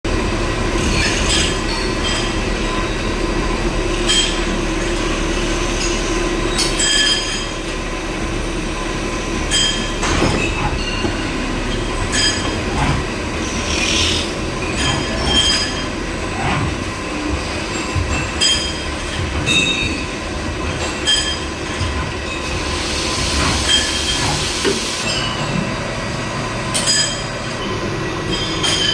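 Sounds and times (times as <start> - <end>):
lathe running with metallic squeal: 0.4 - 28.9
hiss: 13.4 - 14.3, 22.6 - 25.0.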